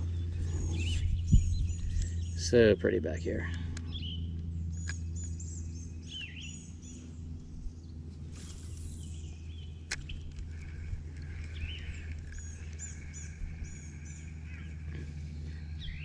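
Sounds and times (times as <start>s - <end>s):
small birds chirping: 0.0s - 16.0s
steady low hum: 0.0s - 16.0s
brief hiss: 8.3s - 9.1s.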